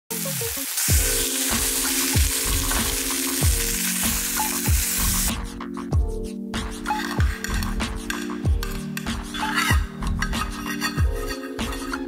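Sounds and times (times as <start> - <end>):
meat sizzling in a skillet: 0.1 - 5.3
background music with deep beat: 0.2 - 12.0.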